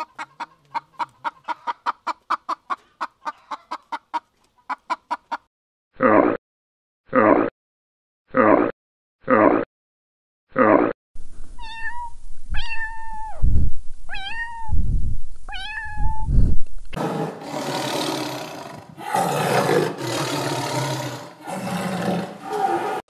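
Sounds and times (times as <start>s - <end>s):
kitten meowing: 11.6s - 13.4s, 14.1s - 14.8s, 15.5s - 16.3s
tiger roaring: 17.0s - 23.0s.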